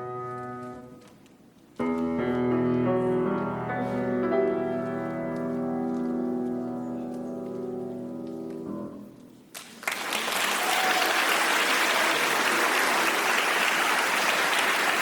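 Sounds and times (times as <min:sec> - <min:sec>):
audience applause: 0:09.5 - 0:15.0.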